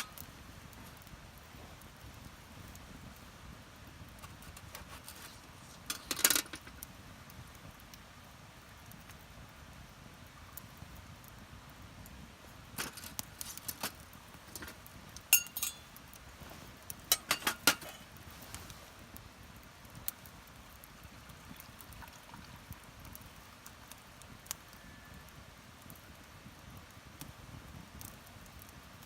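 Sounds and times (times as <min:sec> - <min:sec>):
metal cookware clinking: 0:12.8 - 0:15.9, 0:17.1 - 0:18.1.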